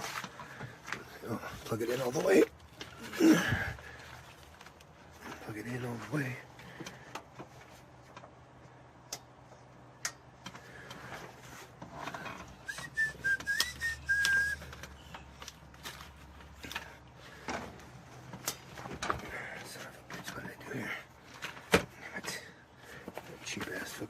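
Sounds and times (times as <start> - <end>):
person whistling: 12.6 - 14.8.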